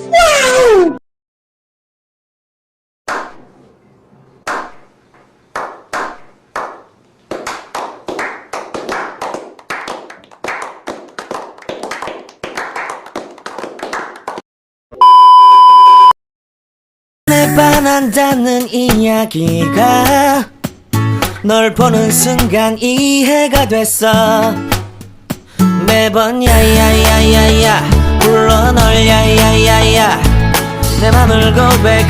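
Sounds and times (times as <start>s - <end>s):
high electronic beep: 15.0s - 16.2s.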